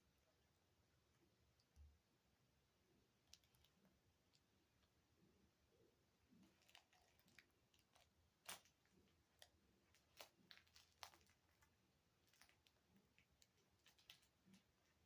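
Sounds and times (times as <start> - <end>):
cat chewing on a toy: 6.3 - 15.0.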